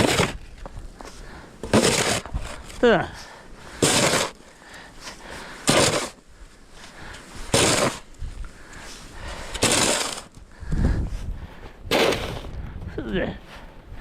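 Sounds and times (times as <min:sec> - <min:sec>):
noisy scraping bursts: 0:00.0 - 0:00.6, 0:01.6 - 0:02.7, 0:03.7 - 0:04.4, 0:05.0 - 0:06.2, 0:07.3 - 0:08.1, 0:09.3 - 0:10.4.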